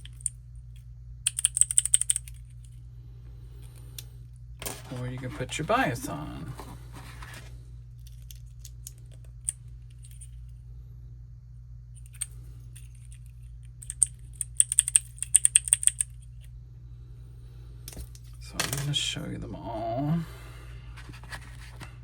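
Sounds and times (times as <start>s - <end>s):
keycap clicker clicking: 1.3s - 2.4s, 13.8s - 16.1s.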